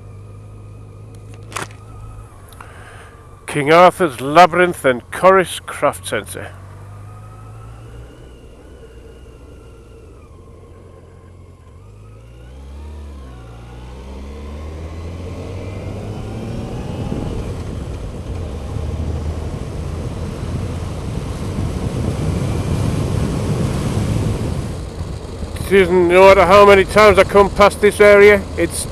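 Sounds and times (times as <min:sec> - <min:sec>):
wind and road noise: 0:00.0 - 0:28.9
motorcycle engine accelerating: 0:06.5 - 0:28.9.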